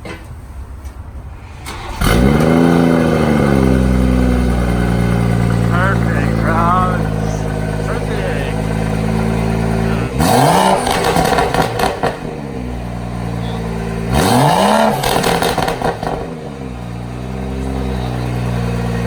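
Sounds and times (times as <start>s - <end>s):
car engine idling and revving: 0.4s - 19.0s
exhaust crackles and pops: 1.7s - 12.4s, 13.4s - 16.4s.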